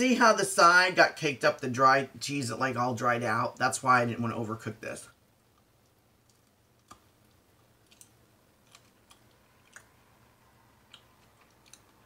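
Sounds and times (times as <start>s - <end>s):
mouth chewing clicks: 5.5s - 10.0s, 10.8s - 12.0s.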